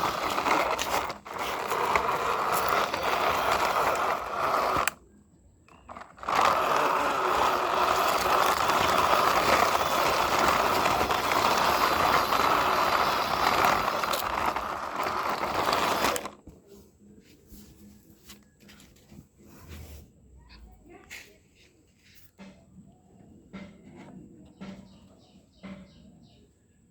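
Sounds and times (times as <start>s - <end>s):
sand scraping under toy vehicles: 0.0s - 5.0s, 5.7s - 20.2s.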